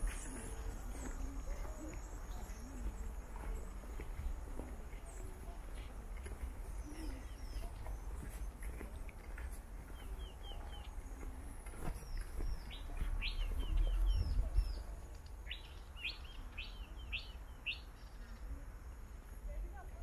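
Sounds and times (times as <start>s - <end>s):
small birds chirping: 0.0s - 19.8s.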